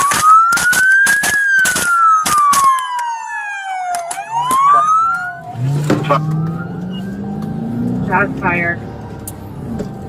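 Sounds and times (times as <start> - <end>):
sharp cracks: 0.0 - 3.2, 3.8 - 5.2
police siren wailing: 0.0 - 10.0.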